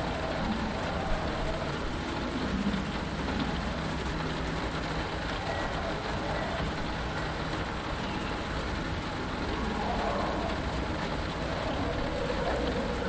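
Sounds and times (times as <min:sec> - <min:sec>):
rain on a canopy: 0:00.0 - 0:13.0.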